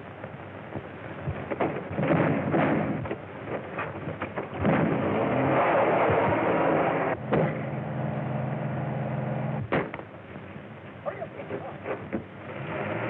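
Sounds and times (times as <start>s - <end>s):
car engine revving: 4.6s - 9.7s, 12.4s - 13.0s.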